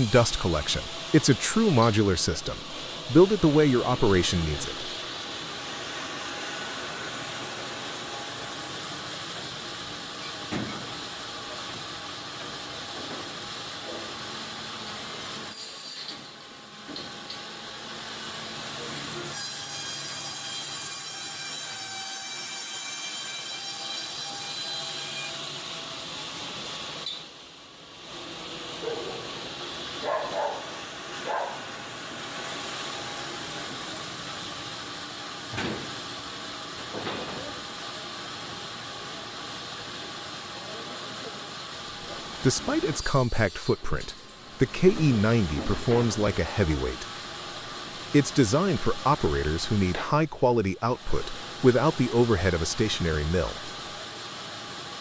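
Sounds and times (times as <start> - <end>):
sawmill machinery hissing: 0.0 - 16.0, 28.0 - 55.0
faint hum: 41.9 - 54.0.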